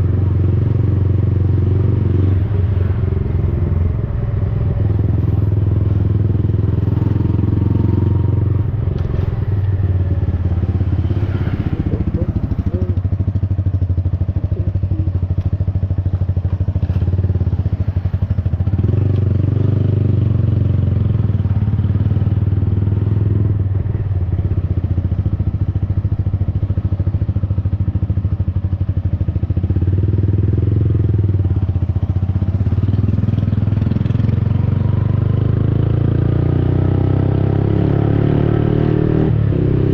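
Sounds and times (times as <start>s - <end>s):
motorcycle engine exhaust note: 0.0s - 16.6s.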